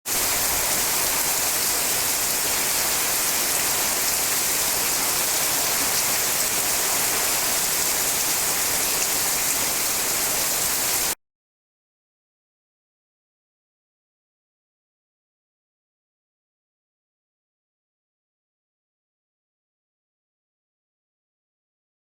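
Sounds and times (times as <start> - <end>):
falling water hiss: 0.1 - 11.2.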